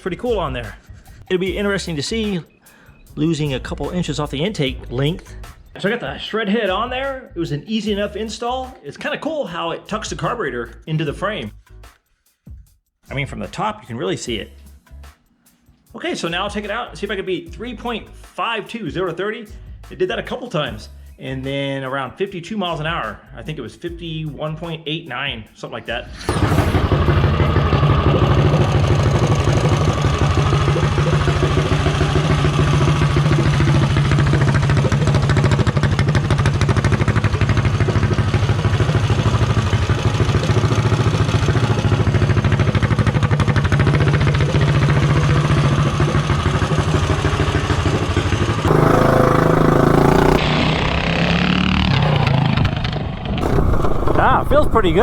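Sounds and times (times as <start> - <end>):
mini bike engine running: 26.3 - 55.0.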